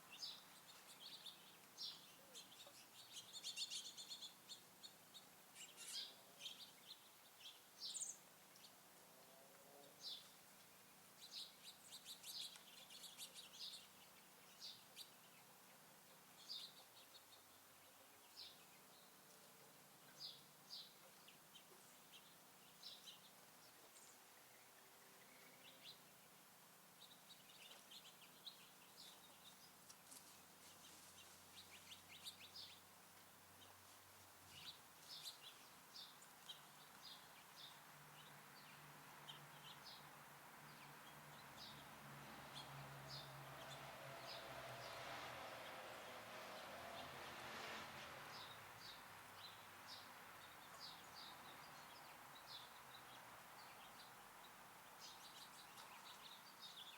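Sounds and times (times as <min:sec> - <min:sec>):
low steady hiss: 0:00.0 - 0:56.9
small songbirds chirping: 0:00.0 - 0:56.9.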